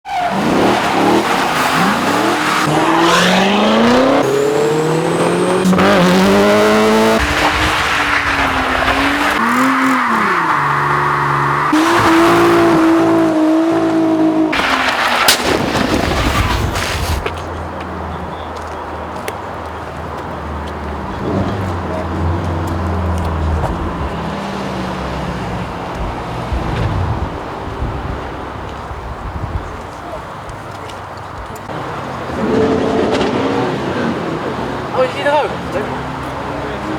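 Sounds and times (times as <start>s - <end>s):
car engines revving: 0.0s - 36.9s
tyre noise: 0.1s - 35.1s
sharp crack: 14.5s - 17.4s.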